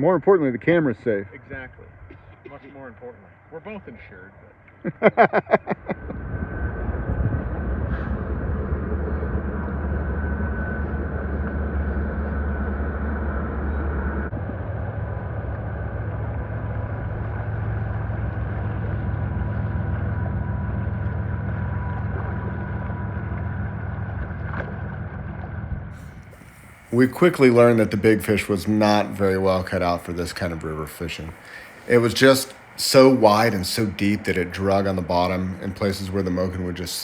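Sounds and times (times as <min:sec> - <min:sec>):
wind on microphone: 0:05.1 - 0:17.8, 0:18.4 - 0:33.3.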